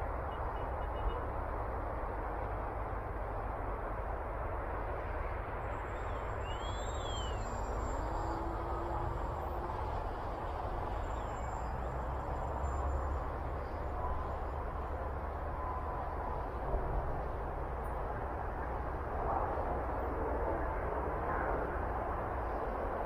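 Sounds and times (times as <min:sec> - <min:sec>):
faint thin gliding whines: 0:05.6 - 0:16.7.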